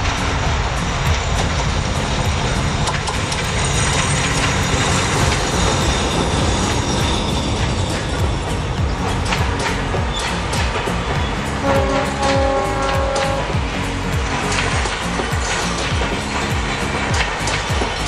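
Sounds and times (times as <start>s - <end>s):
diesel locomotive engine: 0.0s - 18.0s
wheels clicking on rails: 0.0s - 18.0s.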